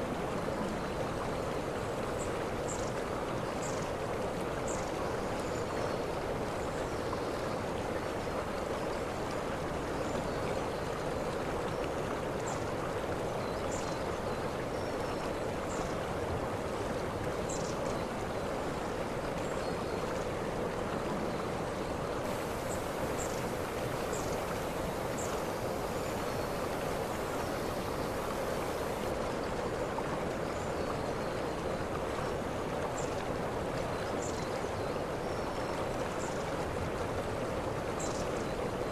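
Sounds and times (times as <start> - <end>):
waterfall rushing: 22.2 - 29.1.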